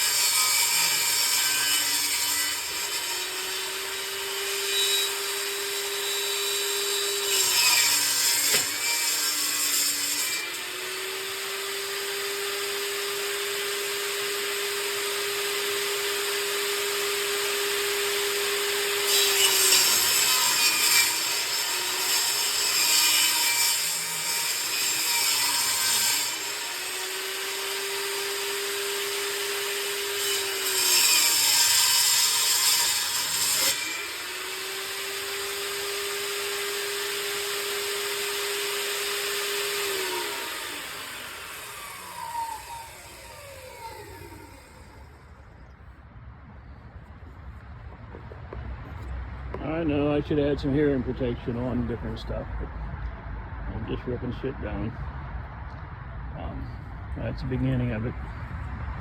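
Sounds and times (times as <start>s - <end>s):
saw blade cutting wood: 0.0s - 45.4s
table saw motor humming: 26.2s - 45.4s.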